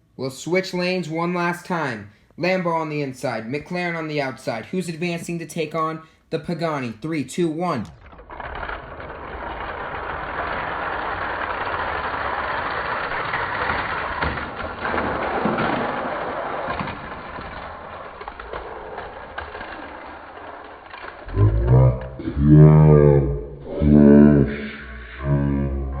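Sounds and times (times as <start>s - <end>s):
toy cars rolling on plastic track: 7.9s - 21.5s.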